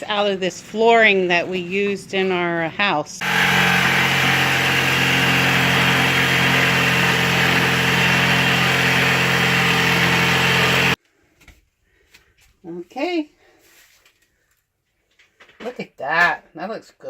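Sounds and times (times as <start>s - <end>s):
electric power saw running: 3.2s - 11.0s.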